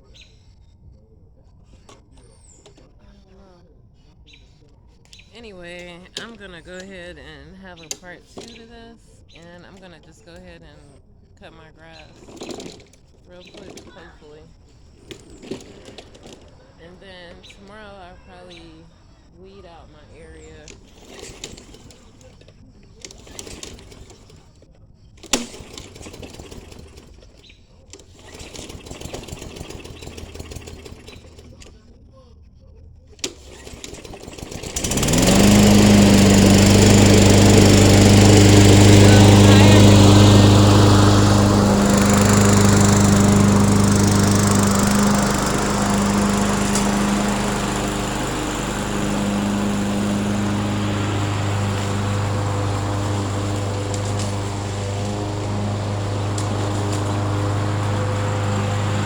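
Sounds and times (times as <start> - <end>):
lawn mower engine running: 5.4 - 18.8, 19.6 - 31.8, 33.2 - 59.0.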